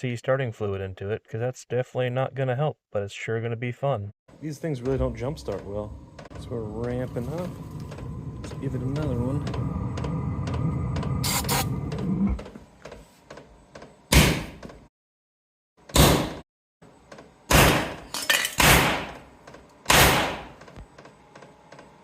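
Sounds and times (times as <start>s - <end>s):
heater motor humming: 4.5s - 12.6s
sudden ignition bangs: 19.9s - 20.6s.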